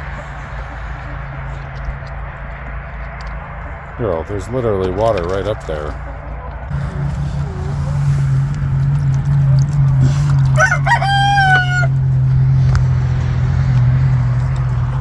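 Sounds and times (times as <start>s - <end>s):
steady low hum: 0.0s - 15.0s
rooster crowing: 10.5s - 12.2s.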